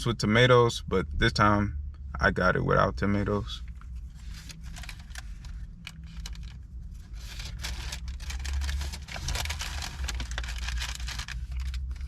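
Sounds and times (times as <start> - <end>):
low rumble: 0.0 - 12.0
paper packaging crinkling and tearing: 4.2 - 12.0.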